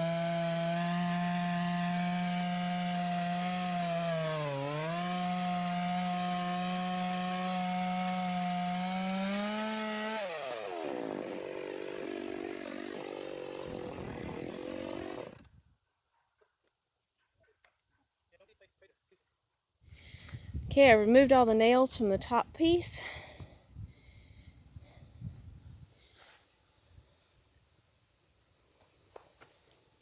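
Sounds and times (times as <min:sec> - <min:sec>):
chainsaw cutting a log: 0:00.0 - 0:15.5.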